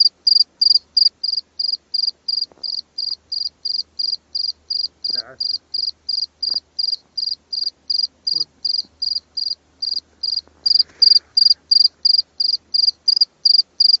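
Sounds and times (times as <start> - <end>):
cricket chirping: 0.0 - 14.0.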